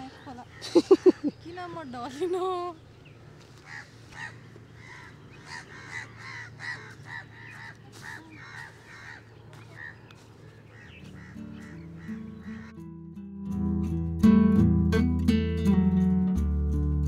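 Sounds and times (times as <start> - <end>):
birds calling repeatedly: 0.0 - 12.9
music: 11.0 - 17.0.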